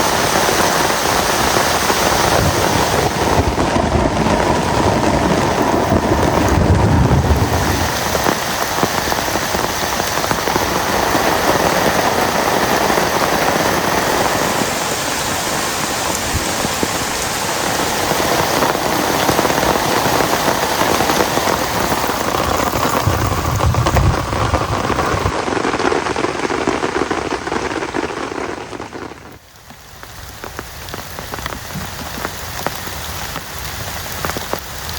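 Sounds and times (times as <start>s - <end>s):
heavy rain falling: 0.0s - 34.9s
low rumbles: 2.3s - 9.8s, 20.0s - 25.4s.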